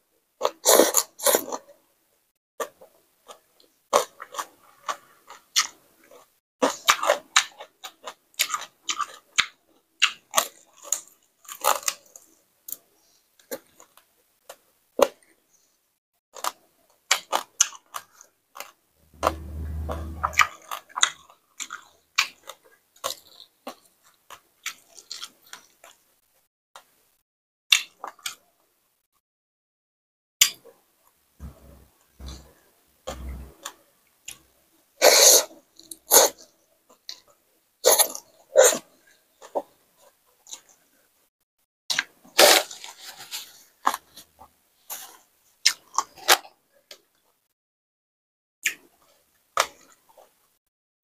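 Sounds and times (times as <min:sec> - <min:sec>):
person chewing crunchy food: 0:03.3 - 0:12.2, 0:21.0 - 0:26.0, 0:44.9 - 0:46.4
low rumble: 0:19.1 - 0:20.6, 0:31.4 - 0:33.6.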